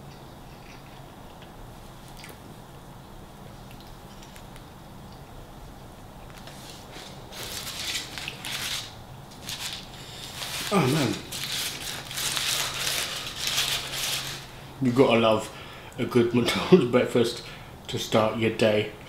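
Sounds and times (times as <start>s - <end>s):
chewing food: 0.0s - 2.5s, 3.5s - 5.3s
wet mouth clicks: 2.1s - 2.4s
paper wrapper crinkling: 6.3s - 14.6s.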